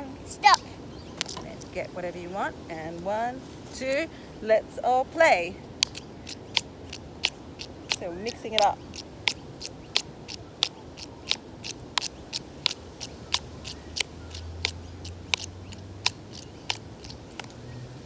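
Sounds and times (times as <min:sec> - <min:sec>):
sticks and stones struck together: 0:05.8 - 0:17.6.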